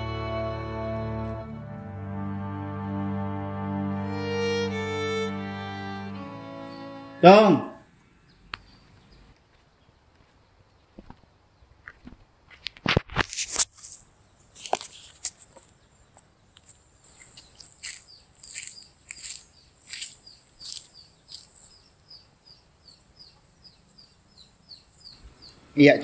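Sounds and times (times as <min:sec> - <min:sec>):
bird chirping: 0:04.1 - 0:11.8, 0:14.0 - 0:26.0.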